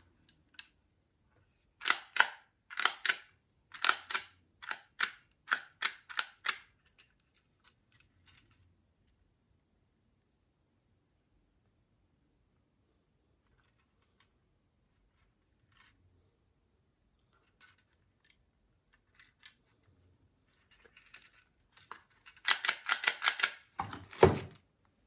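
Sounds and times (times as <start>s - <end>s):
sharp plastic clicks: 1.8s - 6.7s, 22.3s - 24.3s.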